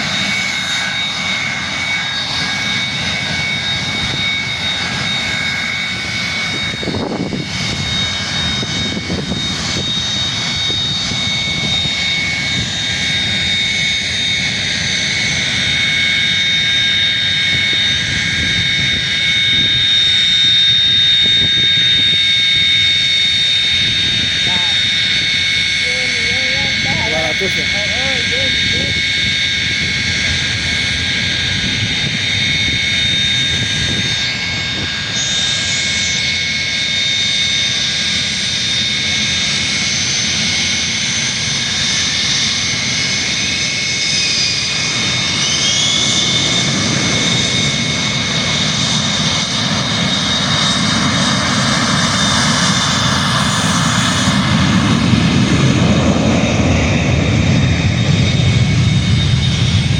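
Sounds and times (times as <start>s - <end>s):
jet engines whining: 0.0s - 59.9s
broad low rumble: 21.2s - 36.2s.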